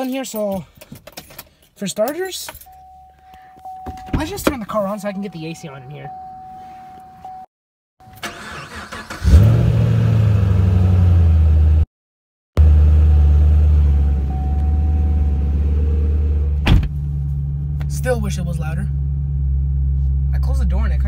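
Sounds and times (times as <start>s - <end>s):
car engine starting and idling: 8.0s - 11.8s, 12.6s - 21.0s.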